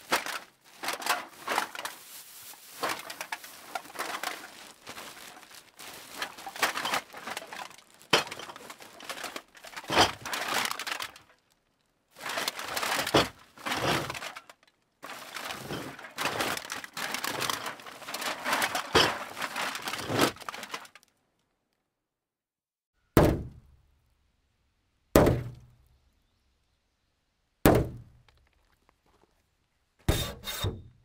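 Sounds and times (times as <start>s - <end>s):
crunching rattling clatter: 0.0s - 11.6s, 12.2s - 21.1s.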